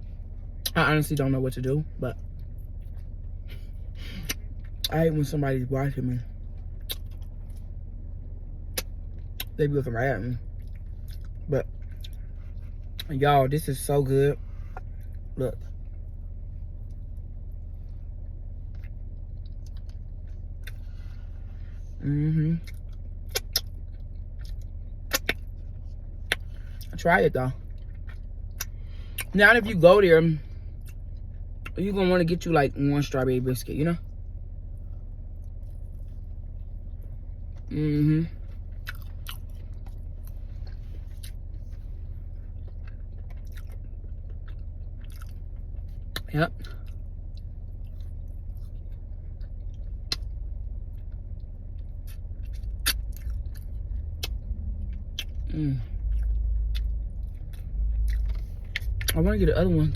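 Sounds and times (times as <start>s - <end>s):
car engine idling: 0.0s - 59.9s
steady low hum: 0.0s - 59.9s
person chewing biscuit: 10.4s - 13.1s, 16.7s - 21.3s, 21.9s - 27.0s, 27.6s - 29.4s, 35.3s - 59.2s.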